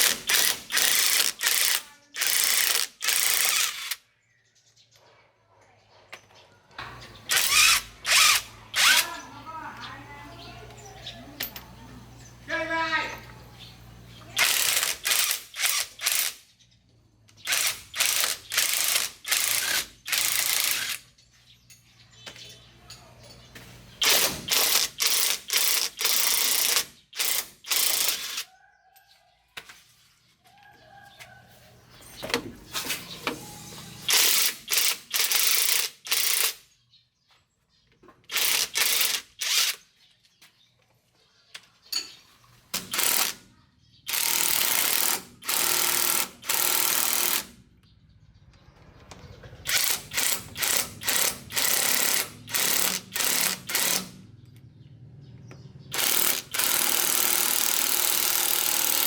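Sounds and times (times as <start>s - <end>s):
power wrench bursts: 0.0s - 4.0s, 7.1s - 9.2s, 14.4s - 16.5s, 17.4s - 21.0s, 24.0s - 28.5s, 32.7s - 36.6s, 38.3s - 39.8s, 42.7s - 43.4s, 44.1s - 47.6s, 49.6s - 54.2s, 55.9s - 59.0s.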